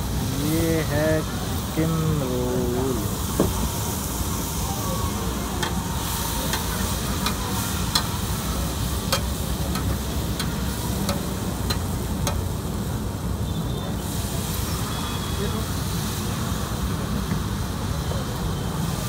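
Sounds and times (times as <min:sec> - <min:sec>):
meat and onions sizzling on griddle: 0:00.0 - 0:19.0
spatula clacking against griddle: 0:06.5 - 0:08.2, 0:09.0 - 0:12.5.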